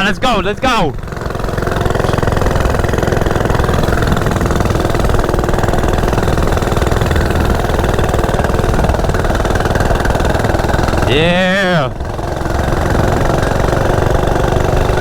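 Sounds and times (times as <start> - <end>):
minibike engine running: 0.0 - 15.0.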